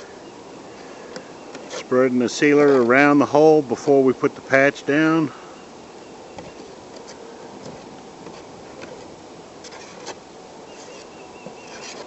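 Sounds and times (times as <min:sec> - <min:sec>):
faint high buzz: 0:00.0 - 0:12.0
sealer scraping on metal roof: 0:00.8 - 0:04.5, 0:06.4 - 0:12.0.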